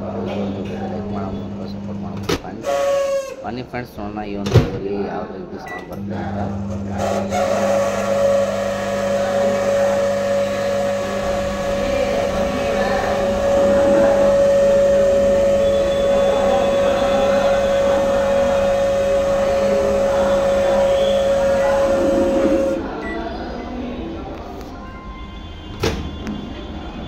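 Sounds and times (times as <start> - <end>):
microwave fan humming and whining: 0.0 - 3.6, 5.8 - 23.6.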